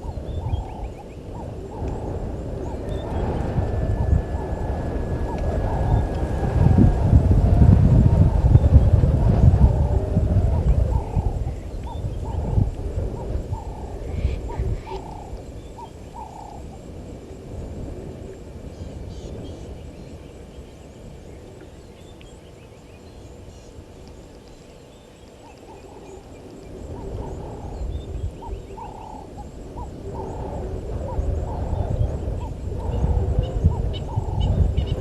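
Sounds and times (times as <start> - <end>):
wild birds calling: 0.0 - 7.2, 8.2 - 16.8, 24.4 - 35.0
low rumble: 1.6 - 15.6.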